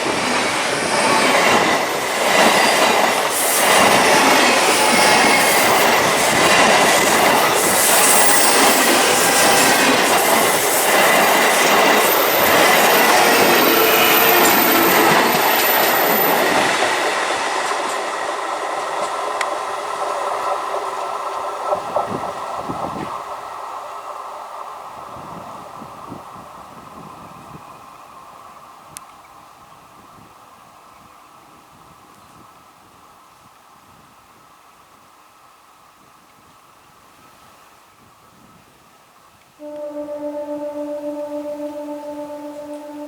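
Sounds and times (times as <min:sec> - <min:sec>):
train clickety-clack: 0:00.0 - 0:23.4
train wheels rushing on rail: 0:00.0 - 0:28.6.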